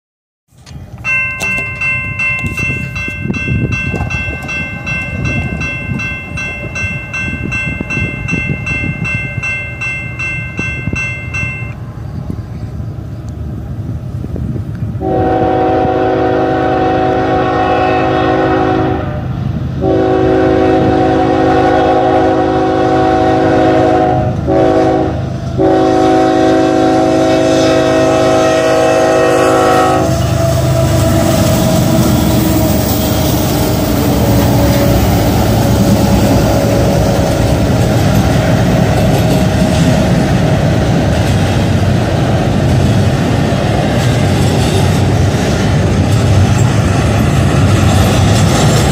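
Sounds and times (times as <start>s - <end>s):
wheels clattering on rails: 0.5s - 12.7s, 30.0s - 48.9s
train rumbling past: 0.5s - 48.9s
locomotive horn: 15.0s - 38.1s.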